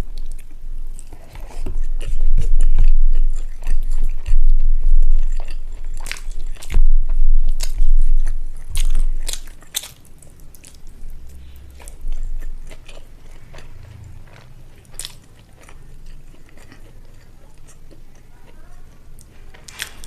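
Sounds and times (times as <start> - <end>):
person chewing food: 0.0 - 20.0.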